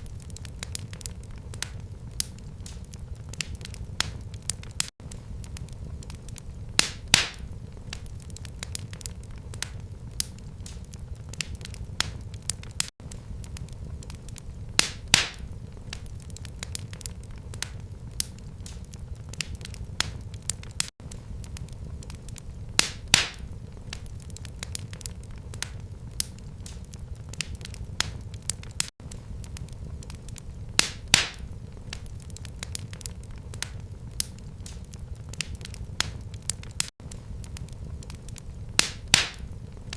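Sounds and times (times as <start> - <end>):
fire crackling in a fireplace: 0.0 - 39.9
fire popping: 0.0 - 39.9
steady low rumble: 5.0 - 12.3, 13.0 - 18.7, 21.0 - 26.6, 37.0 - 39.9.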